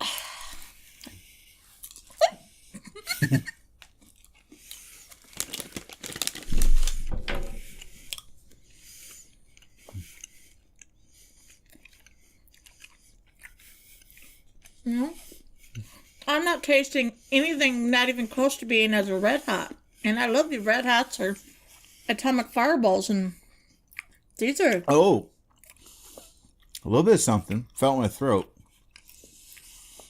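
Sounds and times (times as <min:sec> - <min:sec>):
person chewing candy: 0:00.0 - 0:07.0, 0:07.6 - 0:16.4, 0:23.3 - 0:30.0
thump with rustling: 0:06.4 - 0:07.7.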